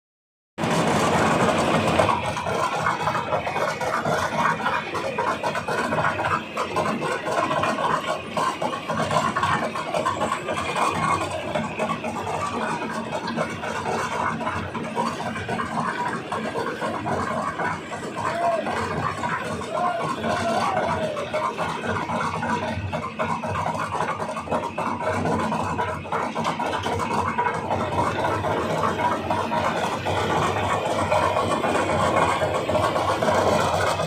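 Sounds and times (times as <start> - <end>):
mixer machine din: 0.6 - 34.0
rapid irregular clattering: 0.6 - 34.0.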